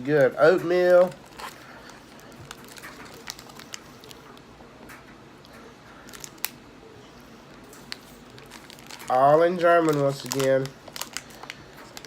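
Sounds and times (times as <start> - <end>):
plastic wrapper crinkling: 0.0 - 4.5, 6.0 - 6.6, 7.5 - 12.0.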